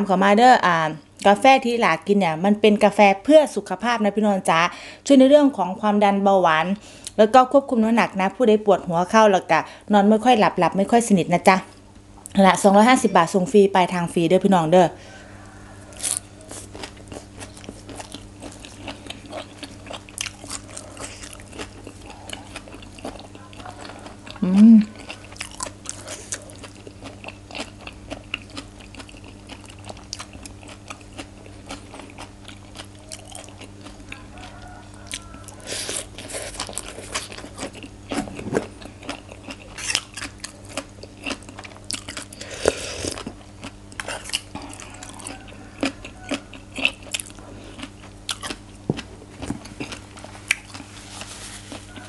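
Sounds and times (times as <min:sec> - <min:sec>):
faint low hum: 0:00.0 - 0:52.0
crisp chewing and crunching: 0:15.8 - 0:52.0.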